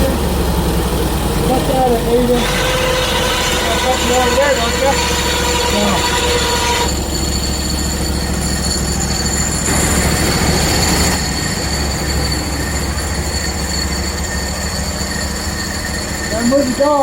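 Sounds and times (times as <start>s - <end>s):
engine hum: 0.0s - 17.0s
high band blade whine: 0.0s - 17.0s
loud hiss: 2.0s - 6.9s.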